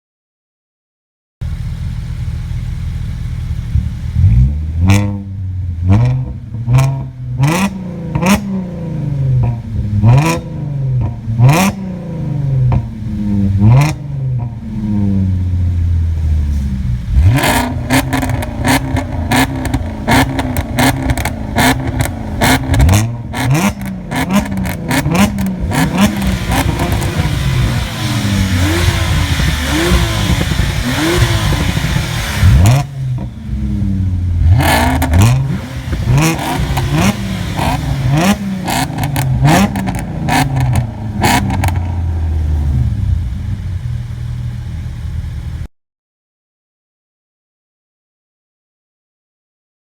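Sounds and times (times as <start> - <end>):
car engine revving: 1.4 - 45.7
exhaust pops and crackles: 16.2 - 45.6.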